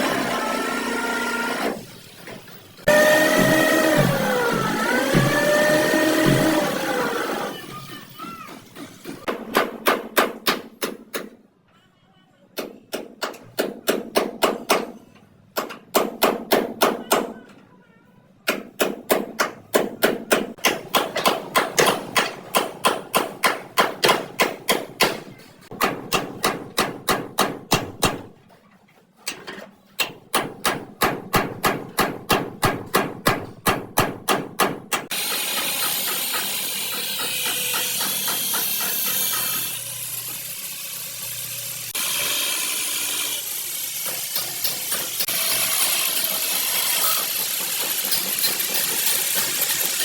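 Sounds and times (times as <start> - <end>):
power tool running: 0.0 - 2.1, 2.8 - 7.9, 35.1 - 50.0
hammer beating car body panel: 15.6 - 17.3, 18.6 - 28.3, 30.3 - 35.1.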